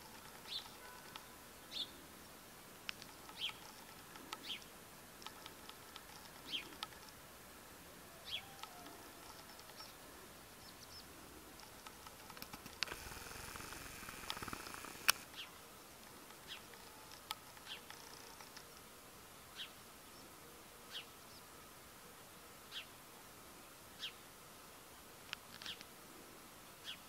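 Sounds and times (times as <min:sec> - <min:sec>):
songbirds chirping: 0:00.0 - 0:21.8, 0:22.5 - 0:23.0, 0:26.6 - 0:27.0
light clicks: 0:02.8 - 0:04.6, 0:08.6 - 0:10.0, 0:11.6 - 0:15.3.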